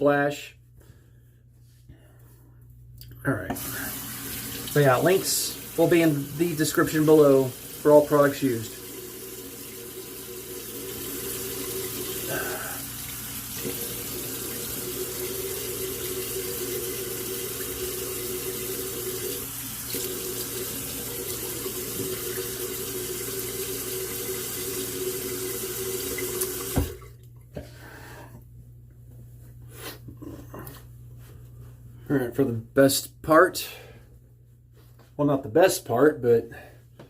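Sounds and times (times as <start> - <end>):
tap water running into sink: 3.5 - 27.2.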